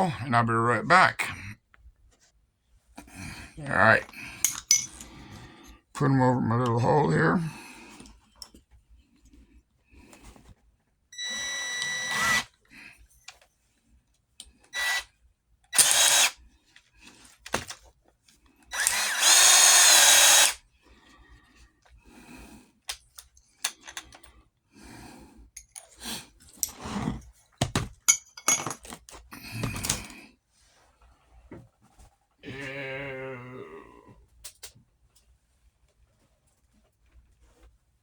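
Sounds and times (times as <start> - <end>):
electric drill running: 11.2 - 12.5, 14.8 - 15.0, 15.7 - 16.4, 18.7 - 20.6.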